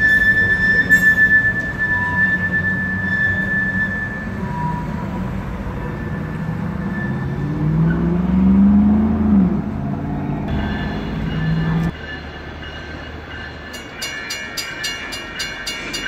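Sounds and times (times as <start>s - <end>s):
train wheels squealing: 0.0s - 8.2s
car driving past: 6.2s - 11.9s.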